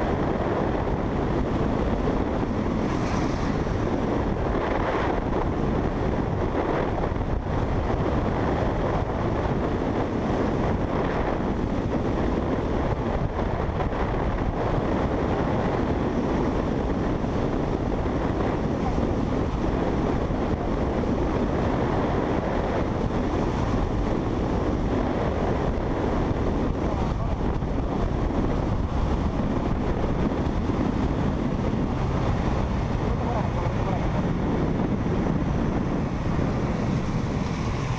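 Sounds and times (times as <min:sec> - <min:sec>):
motorcycle engine drone: 0:00.0 - 0:37.9
wind buffeting microphone: 0:00.0 - 0:37.9.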